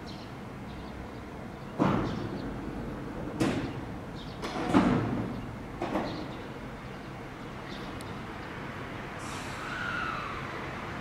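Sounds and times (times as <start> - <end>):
steady background rumble: 0.0 - 11.0
heavy train clunks: 1.7 - 6.6.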